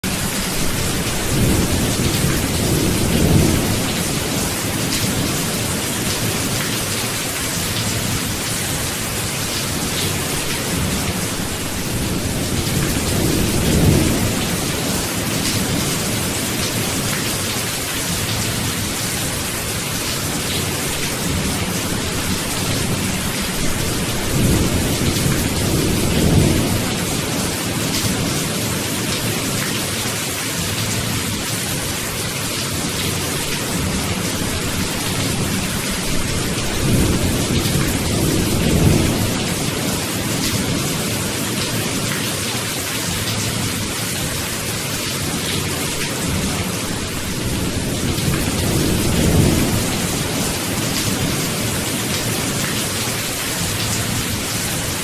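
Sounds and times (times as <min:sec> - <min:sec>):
steady rain hiss: 0:00.0 - 0:55.0
low rolls of thunder: 0:00.2 - 0:06.7.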